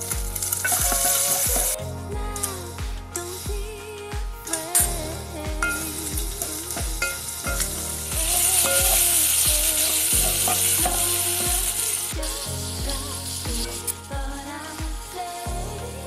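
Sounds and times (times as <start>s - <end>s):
background music with steady beat: 0.0s - 16.0s.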